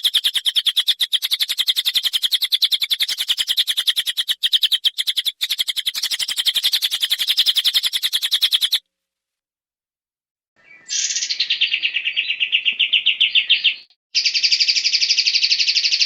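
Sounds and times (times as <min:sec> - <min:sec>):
songbird rattling trill: 0:00.0 - 0:08.8.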